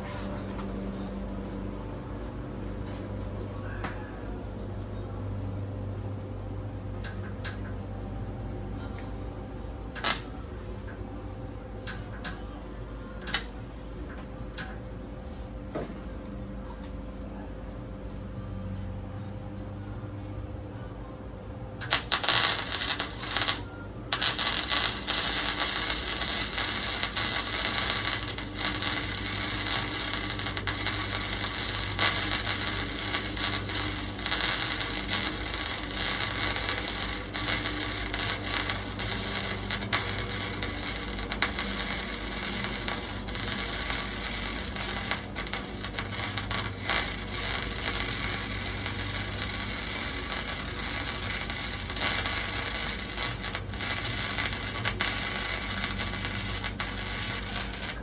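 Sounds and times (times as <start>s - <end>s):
arc welder crackling: 0.0s - 3.6s, 7.0s - 7.8s, 9.9s - 11.0s, 11.8s - 12.5s, 13.2s - 14.8s, 21.8s - 58.0s.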